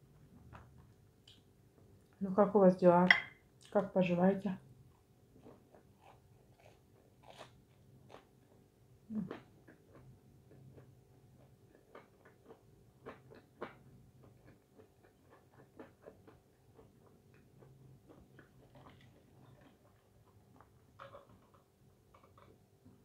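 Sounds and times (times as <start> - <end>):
chewing with wet clicks: 0.5 - 2.2, 9.3 - 22.6.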